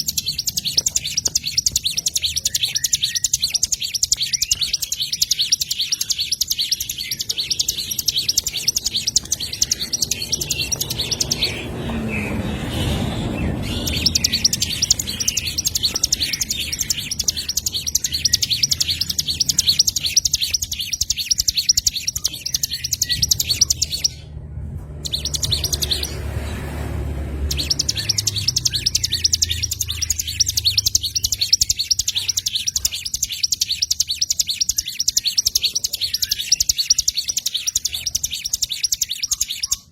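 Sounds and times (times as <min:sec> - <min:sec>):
small songbirds chirping: 0:00.0 - 0:39.9
low rumble: 0:23.1 - 0:27.5.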